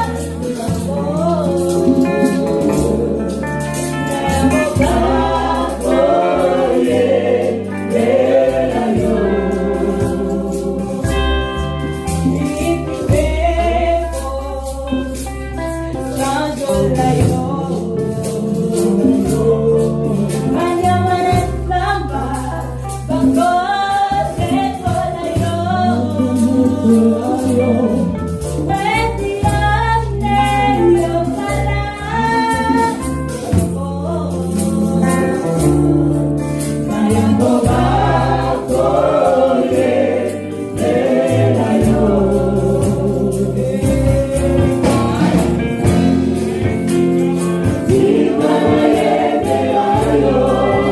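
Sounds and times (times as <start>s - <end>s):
choir singing: 0.0s - 14.2s, 36.8s - 50.9s
band playing: 0.0s - 21.8s, 31.5s - 50.9s
low bass line: 0.0s - 23.1s, 24.5s - 50.9s
steady percussion: 0.0s - 50.9s.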